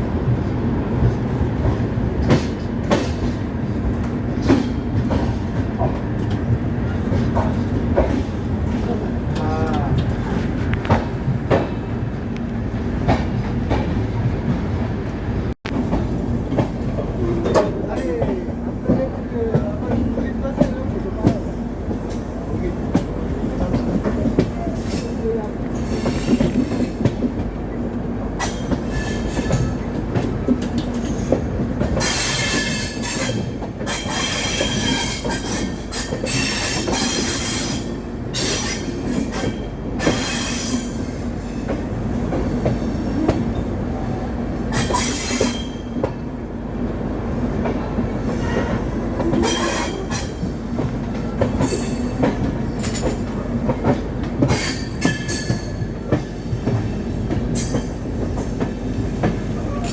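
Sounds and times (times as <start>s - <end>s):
train rumbling along track: 0.0s - 59.9s
train wheels squealing: 28.4s - 29.9s, 32.0s - 41.7s, 44.7s - 46.1s, 48.3s - 50.5s.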